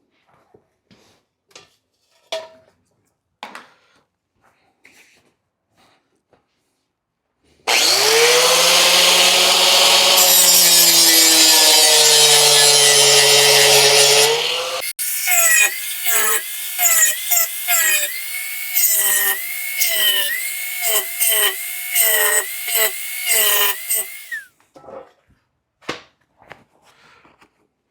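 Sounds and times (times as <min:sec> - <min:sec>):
drill running in short bursts: 0:07.7 - 0:24.5
power tool cutting through material: 0:07.7 - 0:24.5.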